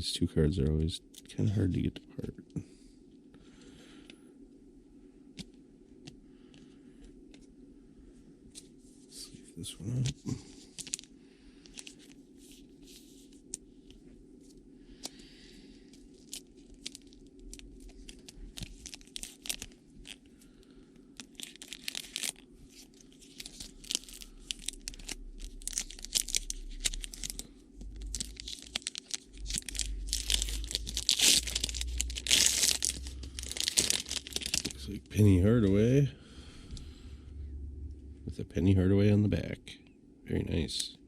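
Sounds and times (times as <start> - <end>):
foil wrapper crinkling and tearing: 10.0 - 13.6, 15.9 - 35.0.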